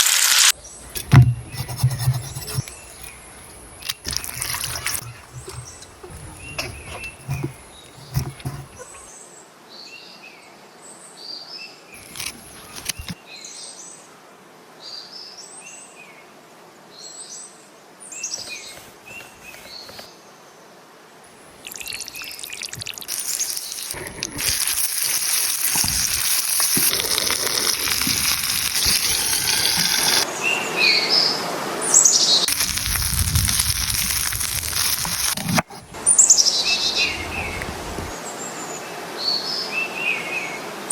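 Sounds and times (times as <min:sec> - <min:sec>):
sizzling hiss: 0:21.5 - 0:30.3, 0:32.4 - 0:35.6
small birds chirping: 0:21.6 - 0:30.3, 0:36.0 - 0:38.6.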